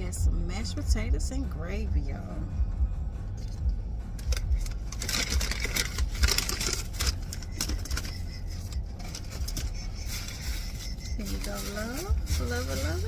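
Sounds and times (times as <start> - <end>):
low rumble: 0.0 - 13.0
plastic containers clicking and crinkling: 4.2 - 10.6.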